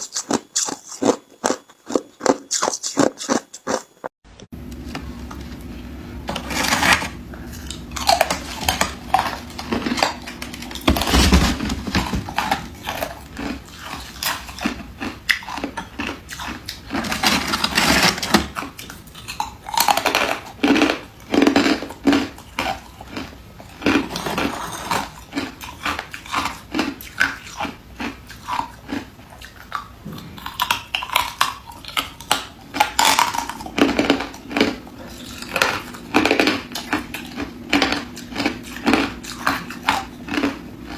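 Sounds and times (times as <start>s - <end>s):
person crunching ice: 6.3s - 18.4s.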